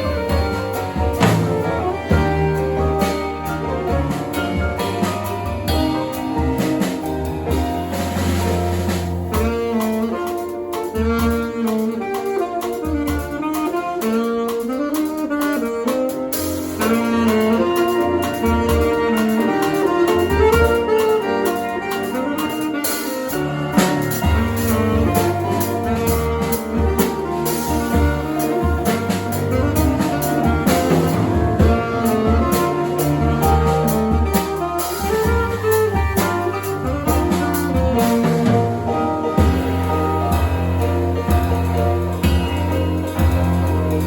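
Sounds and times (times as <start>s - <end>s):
low bass notes: 0.0s - 10.1s, 23.3s - 44.0s
alto saxophone melody: 0.0s - 44.0s
drum kit with cymbals: 0.0s - 44.0s
piano and keyboard chords: 0.0s - 44.0s.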